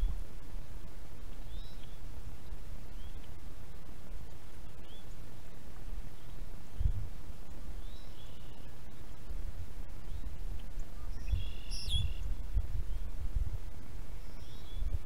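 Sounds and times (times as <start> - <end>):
wind rumble on microphone: 0.0 - 15.0
bird chirping: 1.4 - 2.0, 2.9 - 3.3, 4.6 - 5.2, 7.5 - 9.4, 10.0 - 13.1, 13.8 - 15.0.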